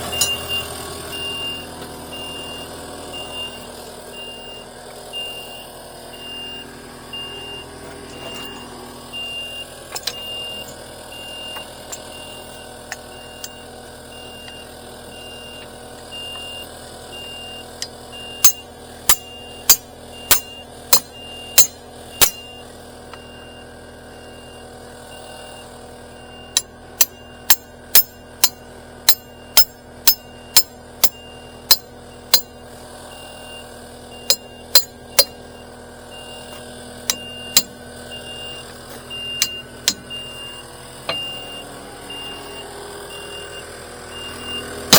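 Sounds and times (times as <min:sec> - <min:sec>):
vehicle backup alarm beeping: 0:00.0 - 0:44.9
sharp clicks or knocks: 0:39.4 - 0:40.1.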